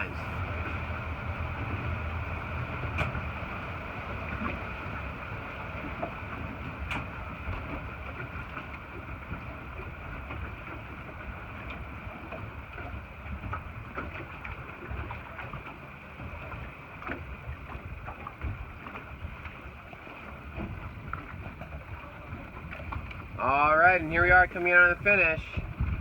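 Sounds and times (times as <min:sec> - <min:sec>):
water and hull sounds: 0:00.0 - 0:26.0
wind rumbling on microphone: 0:00.0 - 0:26.0.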